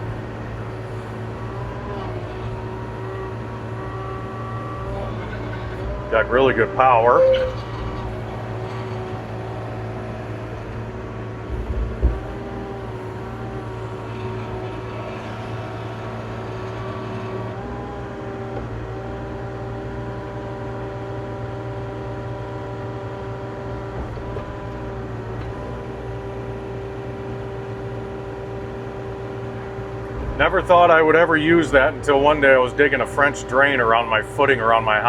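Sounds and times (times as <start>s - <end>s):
excavator diesel engine running: 0.0s - 35.0s
thump: 11.7s - 12.4s.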